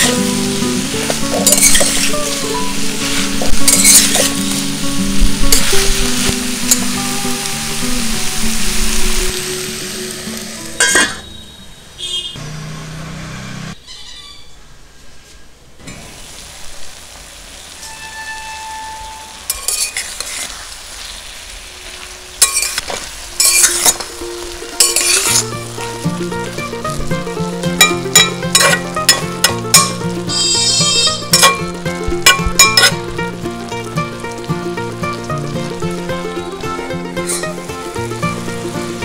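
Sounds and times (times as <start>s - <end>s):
chutney sizzling in a pan: 0.0s - 11.0s, 16.0s - 39.0s
spatula scraping a pan: 1.1s - 2.3s, 3.0s - 4.4s, 17.8s - 20.8s, 22.4s - 24.1s, 24.8s - 25.5s, 27.8s - 33.0s.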